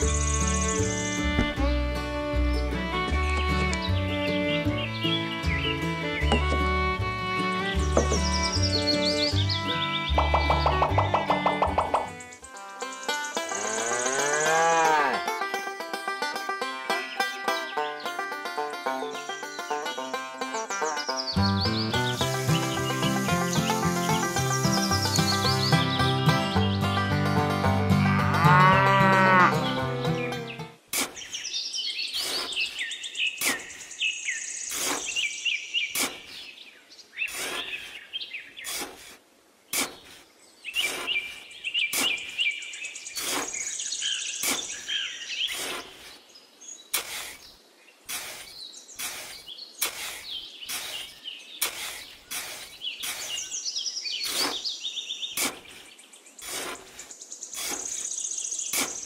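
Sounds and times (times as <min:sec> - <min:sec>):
birds chirping: 0:00.0 - 0:59.0
cow mooing: 0:13.5 - 0:15.3, 0:28.0 - 0:29.7
trowel scraping damp sand: 0:30.9 - 0:31.4, 0:32.1 - 0:33.8, 0:34.7 - 0:36.5, 0:37.2 - 0:42.6, 0:43.2 - 0:46.2, 0:46.9 - 0:53.6, 0:54.2 - 0:59.0.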